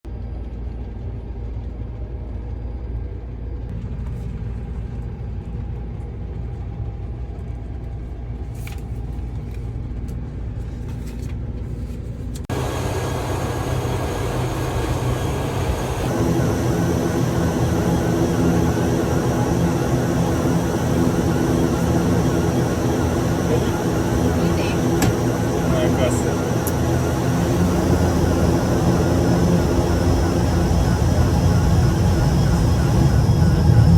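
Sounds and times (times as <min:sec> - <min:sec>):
aircraft cabin engine drone: 0:00.1 - 0:33.9
steady tones: 0:12.5 - 0:33.9.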